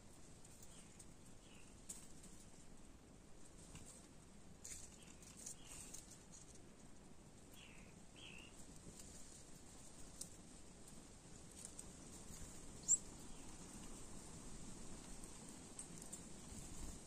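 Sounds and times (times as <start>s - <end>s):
bird pecking in dry leaves: 0.1s - 7.8s, 8.4s - 17.0s
faint bird chirps: 0.6s - 1.8s, 7.5s - 8.6s, 12.8s - 13.7s.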